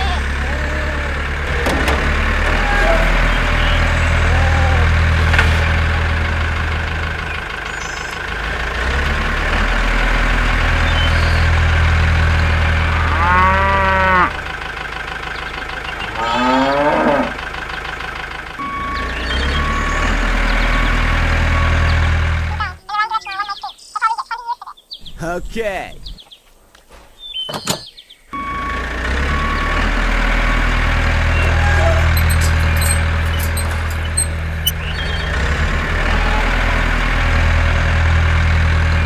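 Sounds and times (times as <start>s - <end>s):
tractor engine running: 0.0s - 22.8s, 28.4s - 39.0s
cow mooing: 12.7s - 14.4s, 16.0s - 17.5s, 31.2s - 34.7s.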